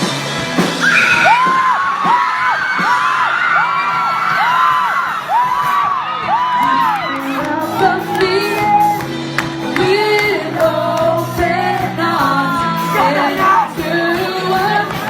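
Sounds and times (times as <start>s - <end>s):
band music with singing: 0.0s - 15.0s
audience shouting: 0.8s - 7.5s.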